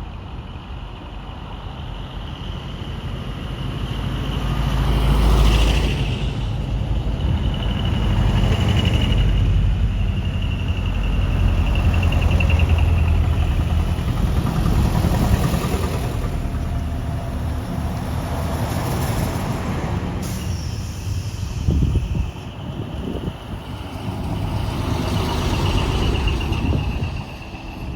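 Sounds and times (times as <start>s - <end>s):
heavy trucks driving past: 0.0s - 27.9s.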